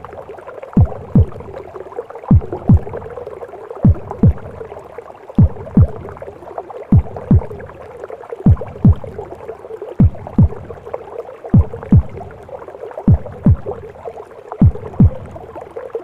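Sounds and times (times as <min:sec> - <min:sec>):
heartbeat double thumps: 0:00.8 - 0:01.6, 0:02.3 - 0:03.2, 0:03.8 - 0:04.7, 0:05.4 - 0:06.2, 0:06.9 - 0:07.8, 0:08.5 - 0:09.3, 0:10.0 - 0:10.9, 0:11.5 - 0:12.4, 0:13.1 - 0:13.9, 0:14.6 - 0:15.6.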